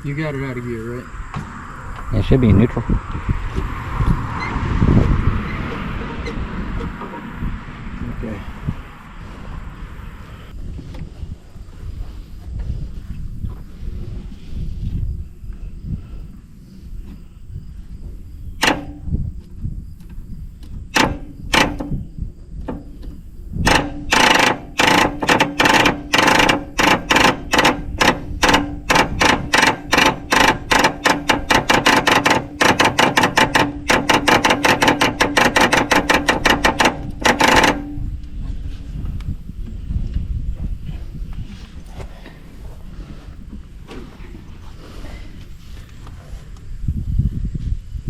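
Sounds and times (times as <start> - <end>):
starter motor clicking: 20.9 - 22.0, 23.6 - 38.1.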